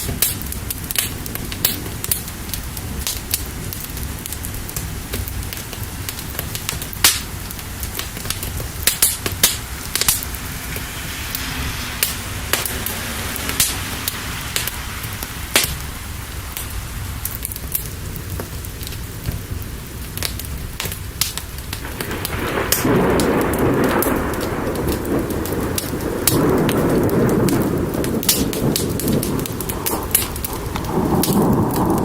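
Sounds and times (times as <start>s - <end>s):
rain hissing: 0.0s - 32.0s
wood fire crackling and popping: 0.0s - 32.0s
low rumble: 7.3s - 32.0s.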